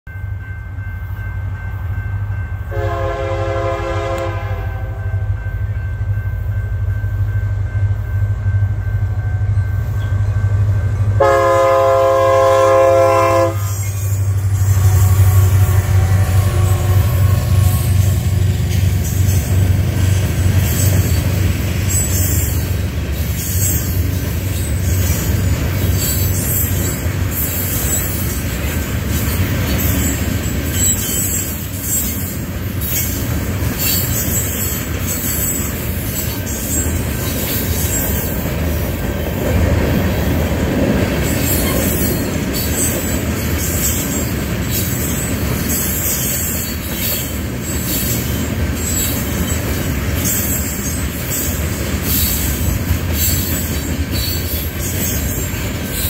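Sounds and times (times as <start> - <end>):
diesel locomotive engine running: 0.4 - 56.0
train horn blasts: 2.6 - 5.6, 11.1 - 18.8.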